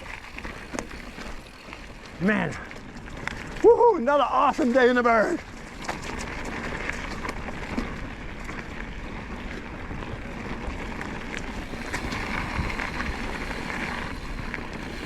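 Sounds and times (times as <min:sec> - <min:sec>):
bicycle tyre rumble: 0:00.0 - 0:15.0
small clicks and rattles: 0:04.6 - 0:15.0
wind buffeting microphone: 0:05.4 - 0:15.0.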